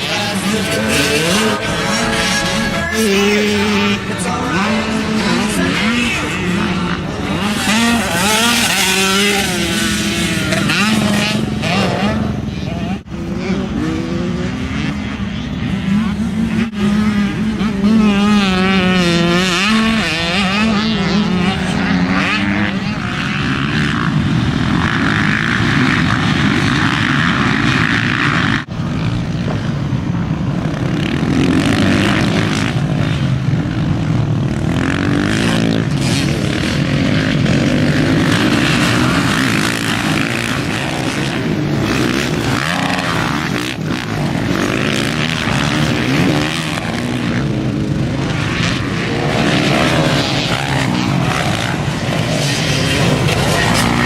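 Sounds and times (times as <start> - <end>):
dirt bike engines racing: 0.0 - 54.0.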